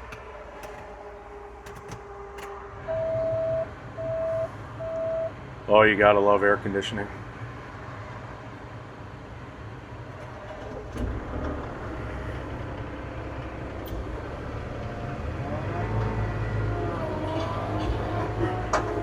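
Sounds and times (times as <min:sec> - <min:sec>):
excavator diesel engine running: 0:09.8 - 0:19.0.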